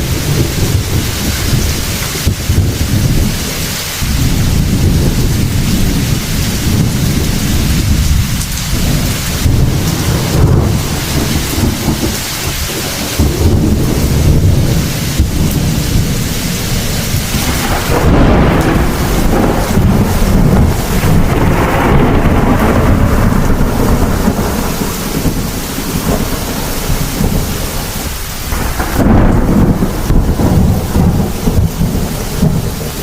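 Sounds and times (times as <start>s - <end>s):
heavy rain: 0.0s - 33.0s
thunder rumbling: 0.0s - 33.0s.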